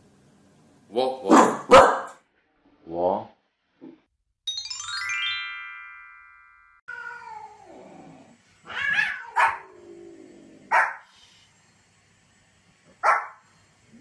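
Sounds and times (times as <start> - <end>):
small dog barking: 1.3 - 2.2, 8.8 - 9.7, 10.7 - 11.1, 13.0 - 13.4
chime: 4.5 - 6.8
cat yowling: 6.9 - 7.8, 8.6 - 9.8.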